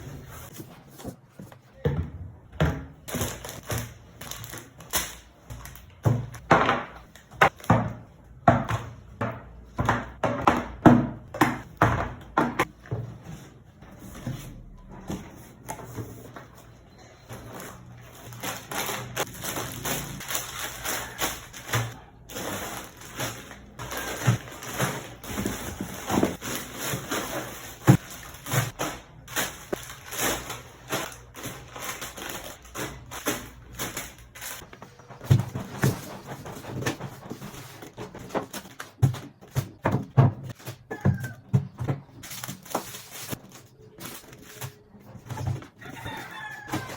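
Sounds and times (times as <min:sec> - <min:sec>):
packaging crinkling and rustling: 0:17.3 - 0:39.5, 0:42.1 - 0:46.9.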